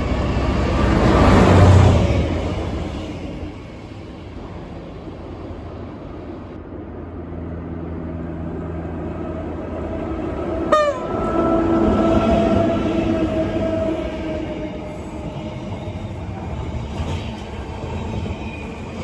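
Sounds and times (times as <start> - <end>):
train passing: 0.0 - 19.0
train horn blast: 10.6 - 14.9.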